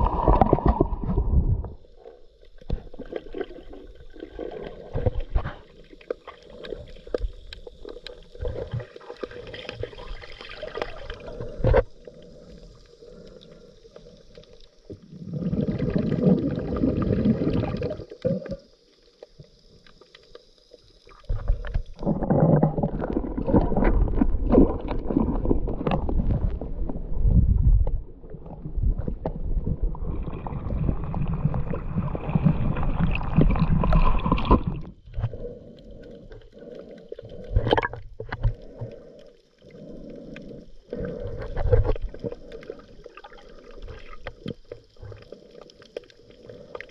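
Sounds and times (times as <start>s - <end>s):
exhaled bubbles rumbling: 0.0s - 18.8s, 21.1s - 46.9s
diver breathing through regulator: 11.2s - 14.5s, 35.1s - 46.9s.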